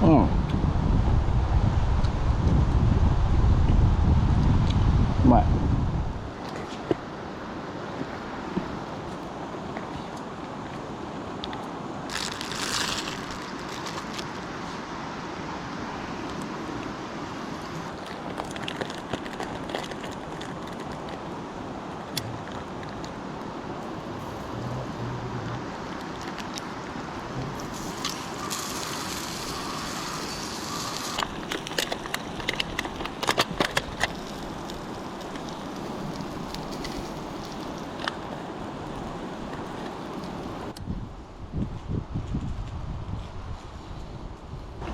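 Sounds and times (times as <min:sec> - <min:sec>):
steady rushing noise: 0:00.0 - 0:44.9
campfire crackling and popping: 0:11.5 - 0:14.6, 0:17.4 - 0:40.8.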